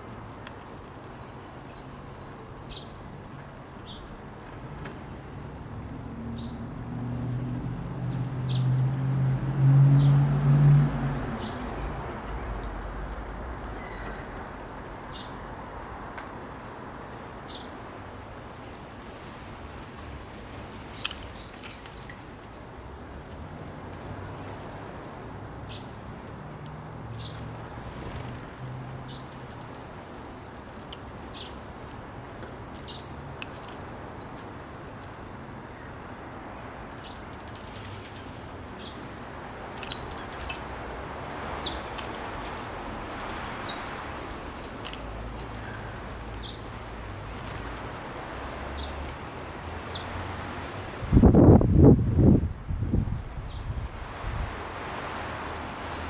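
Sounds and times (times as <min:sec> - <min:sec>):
small birds chip calls: 0:11.2 - 0:22.2, 0:36.9 - 0:50.4.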